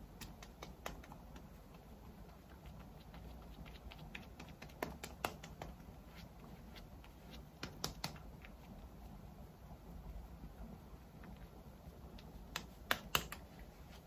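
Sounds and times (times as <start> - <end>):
fingertips tapping on face: 0.0 - 8.9, 12.0 - 13.6.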